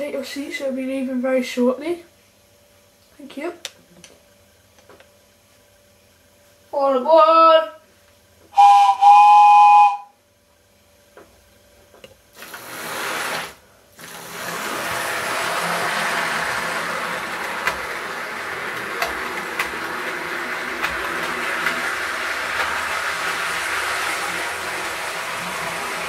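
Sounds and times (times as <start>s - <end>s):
model train motor whirring: 12.4s - 26.0s
wheels running on rails: 12.4s - 26.0s.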